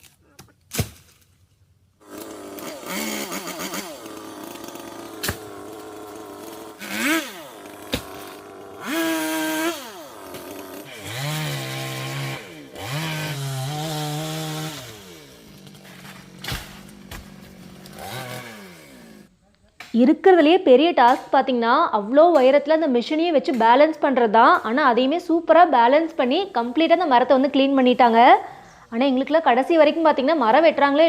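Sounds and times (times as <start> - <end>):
chainsaw revving and cutting wood: 2.0 - 19.3.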